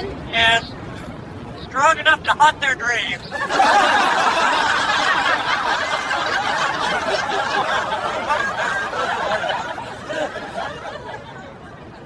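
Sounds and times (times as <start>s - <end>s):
laughter: 3.3s - 12.0s.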